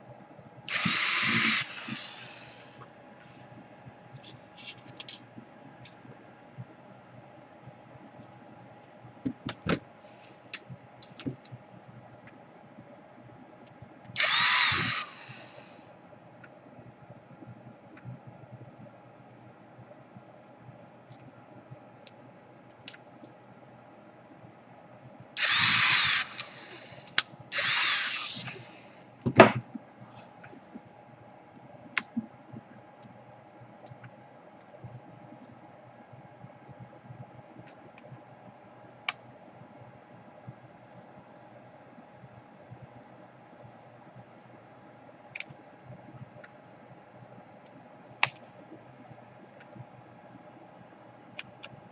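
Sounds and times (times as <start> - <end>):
small power tool bursts: 0.7 - 2.8, 14.2 - 15.7, 25.4 - 28.9.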